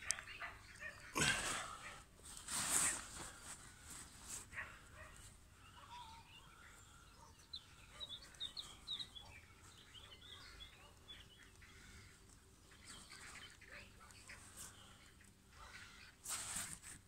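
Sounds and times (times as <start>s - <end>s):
quiet outdoor background noise: 0.0s - 17.0s
bird chirping: 5.0s - 16.2s.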